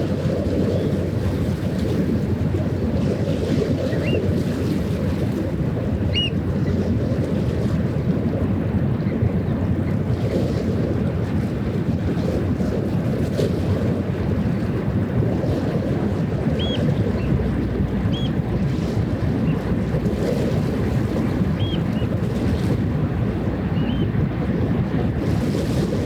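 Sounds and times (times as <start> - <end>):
water: 0.0 - 26.0
wind on microphone: 0.0 - 26.0
high chirping bird calls: 6.1 - 6.3, 16.6 - 17.3, 18.1 - 18.4, 21.6 - 22.1.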